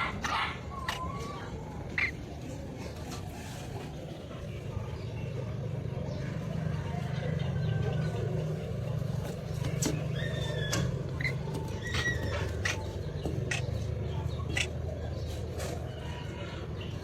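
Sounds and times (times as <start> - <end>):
steady low hum: 0.0 - 17.0
parrot chirping and clicking: 9.9 - 14.7.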